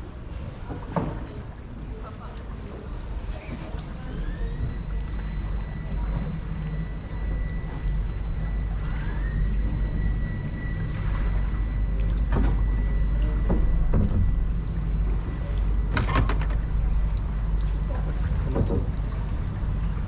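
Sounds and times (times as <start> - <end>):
motorboat engine rumble: 0.0 - 20.0
high engine whine: 4.2 - 20.0.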